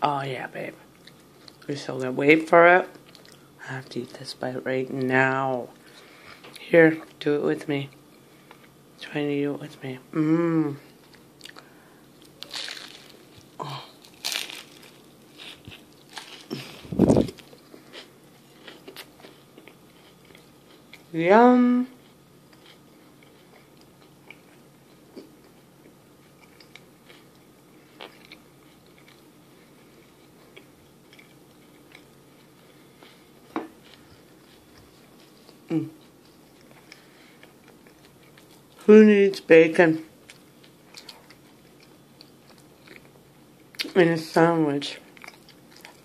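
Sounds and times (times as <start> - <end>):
person chewing: 0.9 - 1.7, 3.0 - 3.6, 10.9 - 21.1, 22.0 - 38.8, 40.2 - 43.9, 45.1 - 46.0
biting and chewing sandwich: 12.2 - 21.1.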